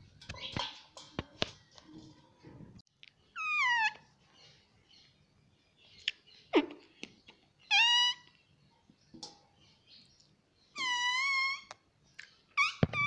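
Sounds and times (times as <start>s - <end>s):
parrot calling: 3.4s - 4.0s, 7.6s - 8.3s, 10.8s - 11.7s.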